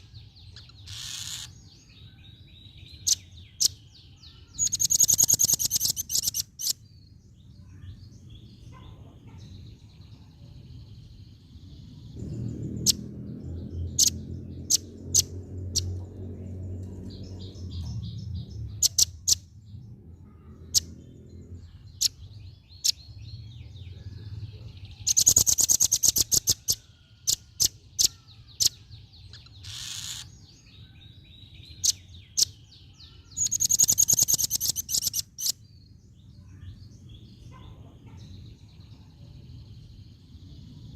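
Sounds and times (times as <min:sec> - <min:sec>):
nuthatch rapid trills: 0:00.6 - 0:01.6, 0:04.6 - 0:06.8, 0:13.9 - 0:16.0, 0:25.1 - 0:30.3, 0:33.4 - 0:35.6.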